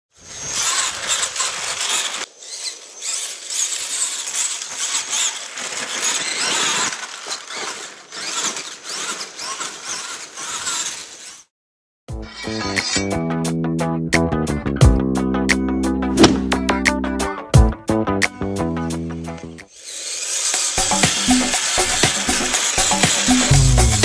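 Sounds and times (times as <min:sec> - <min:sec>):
electric motor and gears whining: 0:00.2 - 0:11.5, 0:12.3 - 0:13.2, 0:19.6 - 0:24.0.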